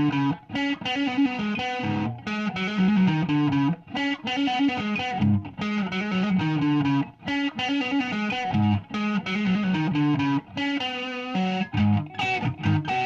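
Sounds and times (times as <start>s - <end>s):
driven electric guitar notes: 0.0s - 13.0s.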